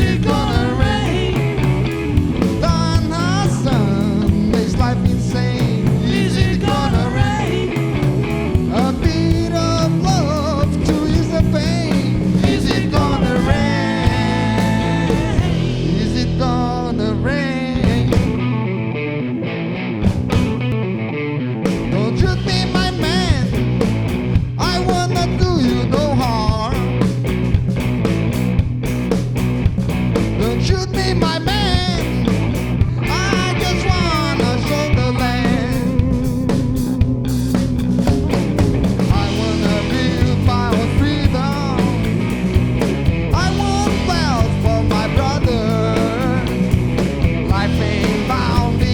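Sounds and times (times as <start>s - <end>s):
rock band playing: 0.0s - 48.9s
lead guitar bending notes: 13.0s - 22.1s.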